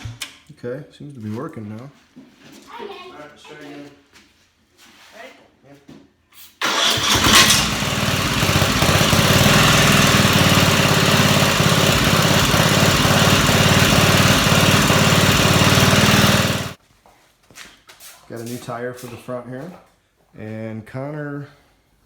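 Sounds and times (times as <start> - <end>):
electric starter cranking: 6.6 - 16.8
small gasoline engine running: 6.6 - 16.8.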